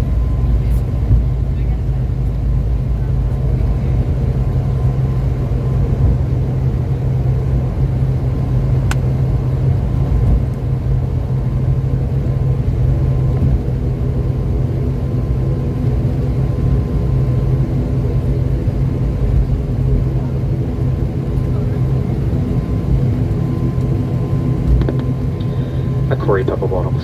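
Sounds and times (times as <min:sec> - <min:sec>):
turboprop engines droning: 0:00.0 - 0:27.0.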